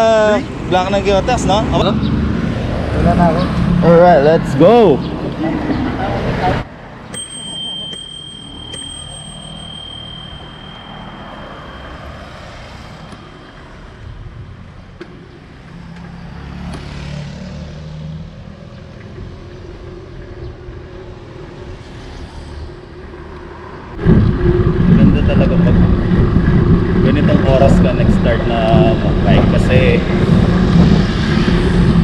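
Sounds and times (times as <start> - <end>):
wind and road noise: 0.0 - 32.0
bicycle bell ringing: 7.1 - 13.5.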